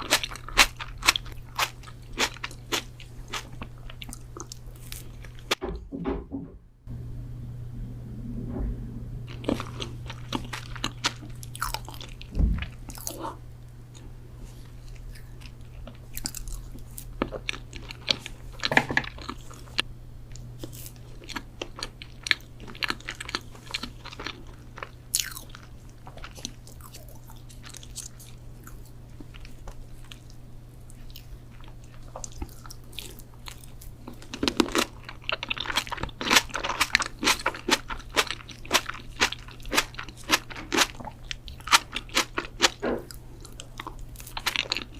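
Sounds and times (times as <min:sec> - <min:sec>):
person eating and chewing: 0:00.0 - 0:05.6, 0:09.3 - 0:44.9
low hum: 0:03.6 - 0:22.9.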